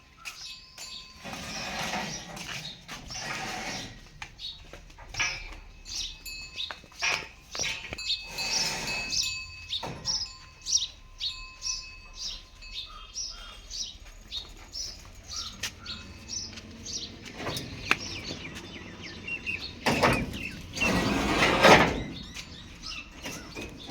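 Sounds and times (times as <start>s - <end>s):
birds chirping: 0.0s - 23.9s
knocks and clatter: 1.2s - 8.0s, 15.2s - 23.9s.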